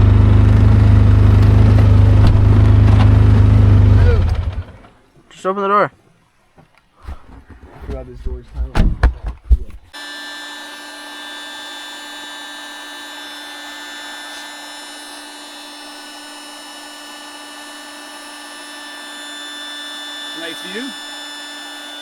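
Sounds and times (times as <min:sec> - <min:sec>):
drone propellers whining: 0:00.0 - 0:04.9, 0:10.0 - 0:22.0.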